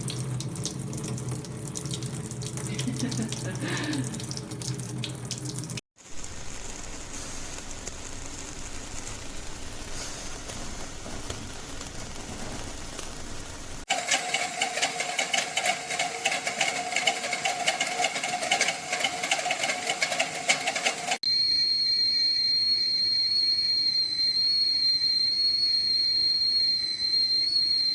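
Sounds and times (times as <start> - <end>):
whistling kettle boiling: 6.0 - 27.9.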